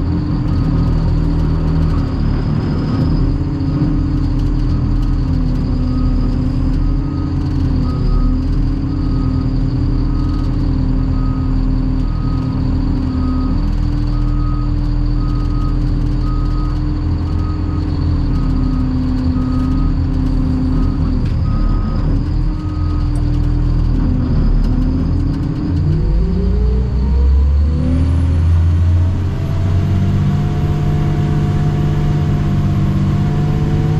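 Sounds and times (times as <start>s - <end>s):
dump truck diesel engine running: 0.0s - 33.9s.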